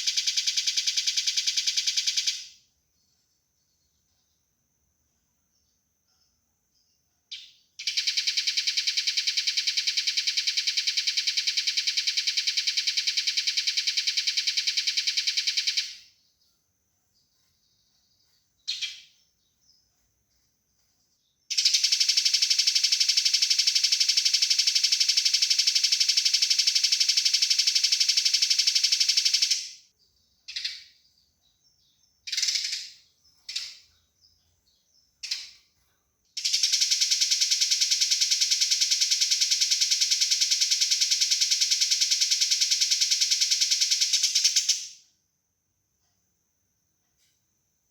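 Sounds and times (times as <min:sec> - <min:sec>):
sparrow short chirps: 0:17.9 - 0:19.8, 0:31.8 - 0:33.9
sparrows rattling chatter: 0:31.8 - 0:35.6.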